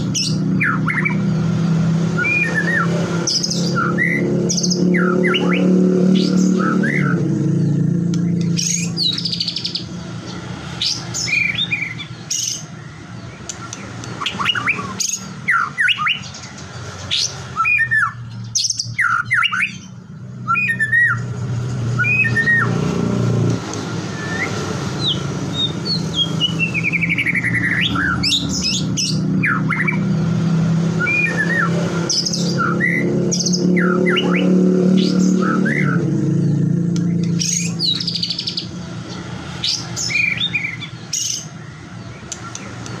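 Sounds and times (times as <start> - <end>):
bird singing whistled notes: 2.1 - 9.9, 10.8 - 16.5, 17.1 - 22.8, 23.9 - 30.2, 30.8 - 38.7.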